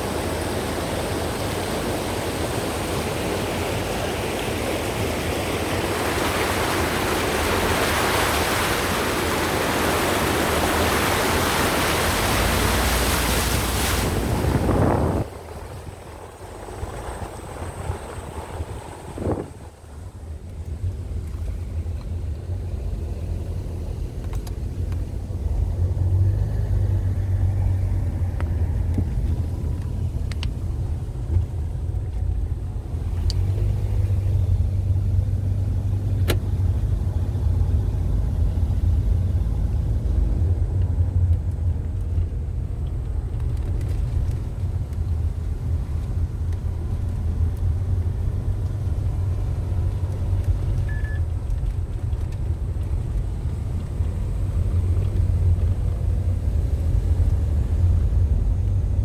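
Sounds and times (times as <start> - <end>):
car driving low rumble: 0.0 - 59.0.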